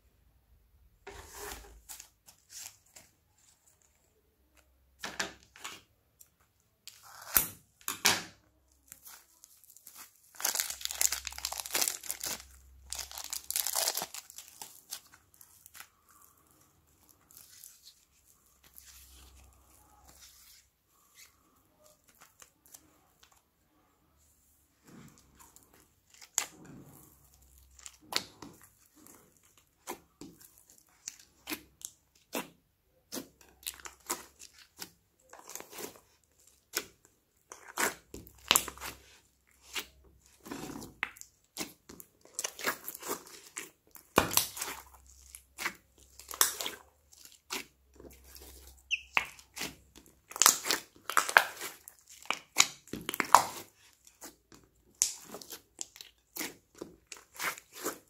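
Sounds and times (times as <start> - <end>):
slime kneading crackles and pops: 8.7 - 18.7, 25.4 - 58.0.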